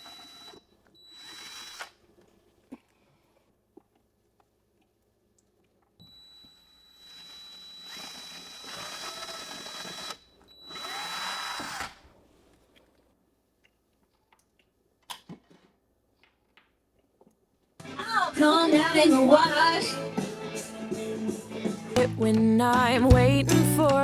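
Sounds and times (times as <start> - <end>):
electric drill boring into wood: 0.0 - 2.0, 6.4 - 12.0.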